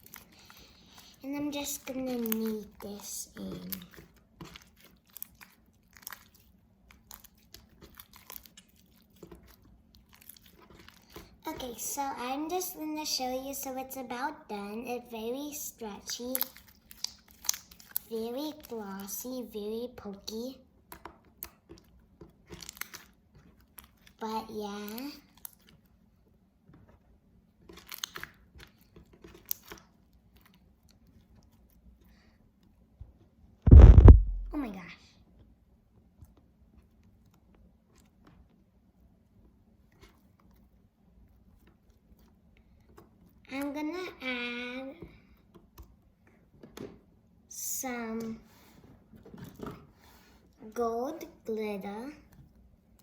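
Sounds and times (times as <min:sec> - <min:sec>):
slime clicks and squishes: 0:02.0 - 0:11.2, 0:16.1 - 0:18.7, 0:20.9 - 0:24.1, 0:27.6 - 0:31.3.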